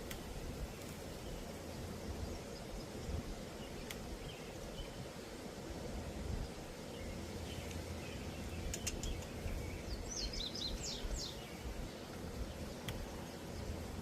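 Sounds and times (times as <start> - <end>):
small bird chirping: 6.4 - 14.0
sharp clicks: 8.7 - 9.3.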